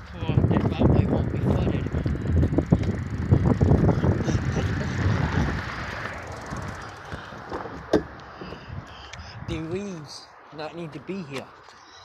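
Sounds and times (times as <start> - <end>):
bicycle rumbling and rattling: 0.0 - 9.5.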